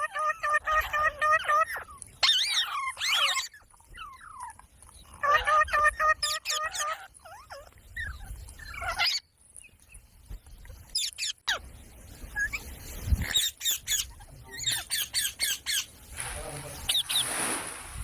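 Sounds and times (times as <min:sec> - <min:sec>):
parakeets screeching: 0:00.0 - 0:04.5, 0:05.2 - 0:09.3, 0:13.2 - 0:15.9, 0:16.8 - 0:17.4.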